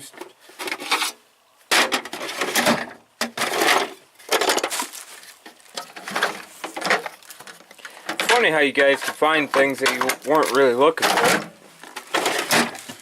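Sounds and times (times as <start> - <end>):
tools clattering in a drawer: 5.8 - 13.0.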